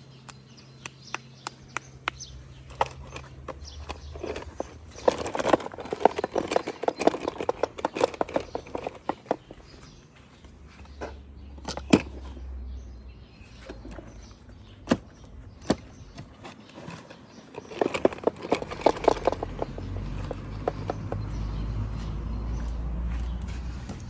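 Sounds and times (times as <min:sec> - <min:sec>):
plastic toys clicking and tapping: 0:00.3 - 0:09.9, 0:15.6 - 0:21.5
rattling clicks: 0:01.1 - 0:09.9, 0:15.6 - 0:21.4.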